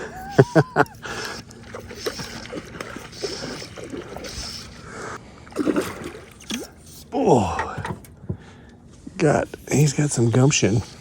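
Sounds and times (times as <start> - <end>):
fish splashing in water: 1.0 - 6.7.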